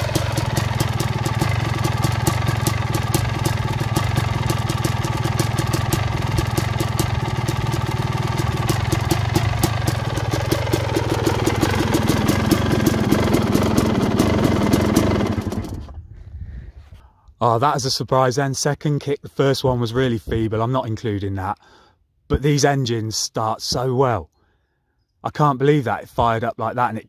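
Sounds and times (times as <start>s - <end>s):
two-stroke engine running: 0.0s - 16.1s.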